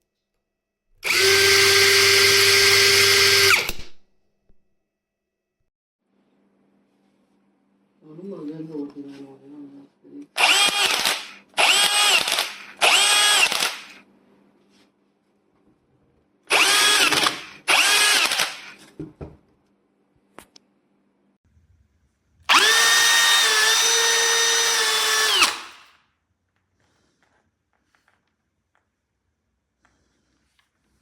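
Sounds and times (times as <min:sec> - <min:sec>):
cordless drill motor whining: 0:01.0 - 0:03.9, 0:10.4 - 0:14.0, 0:16.5 - 0:18.8, 0:22.5 - 0:25.9.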